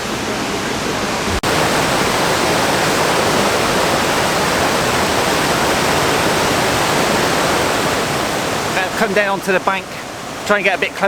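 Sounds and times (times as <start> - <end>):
waterfall and stream rushing: 0.0 - 11.0.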